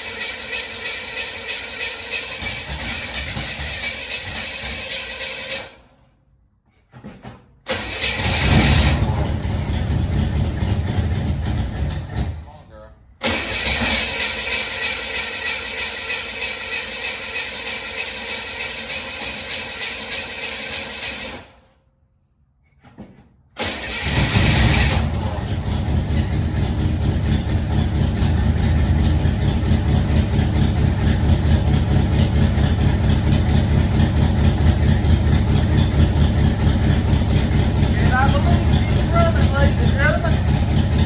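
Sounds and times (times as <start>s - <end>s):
car engine starting and idling: 0.0s - 6.2s, 7.6s - 12.6s, 13.2s - 21.8s, 23.5s - 41.0s
steady mechanical noise: 23.6s - 41.0s.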